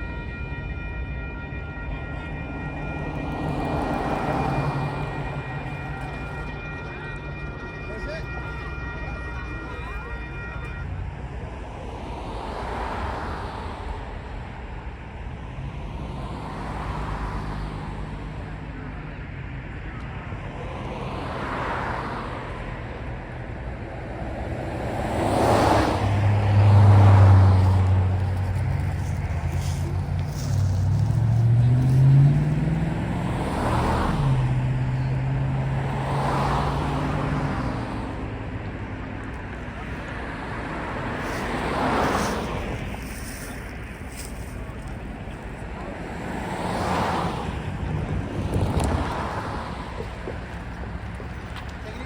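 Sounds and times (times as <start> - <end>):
train horn chord: 0.0 - 11.2
locomotive engine hum: 0.0 - 52.0
rushing rumble: 24.1 - 36.1, 37.0 - 52.0.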